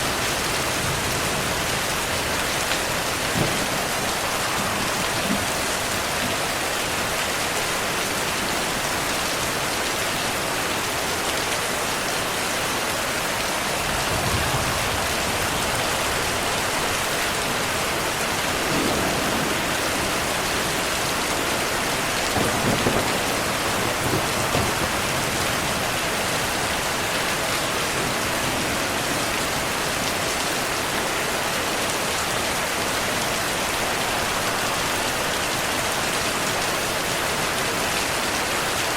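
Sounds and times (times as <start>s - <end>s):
thunder rumbling: 0.0s - 7.7s, 13.6s - 30.2s
heavy rain falling: 0.0s - 38.9s.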